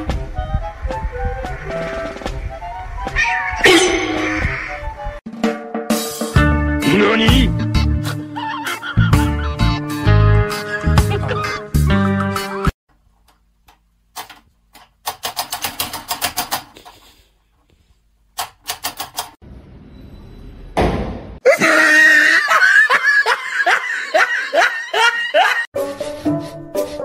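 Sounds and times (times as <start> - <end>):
people laughing: 7.5 - 12.7, 21.5 - 25.7.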